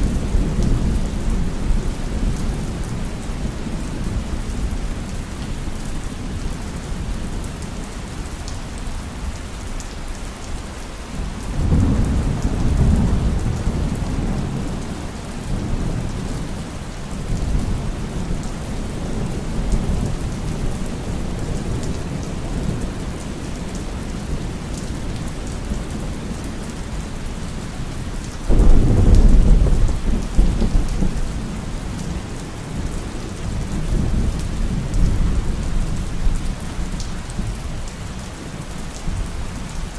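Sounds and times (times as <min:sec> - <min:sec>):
heavy rain: 0:00.0 - 0:39.9
thunder rumbling: 0:11.5 - 0:26.7, 0:28.5 - 0:37.6.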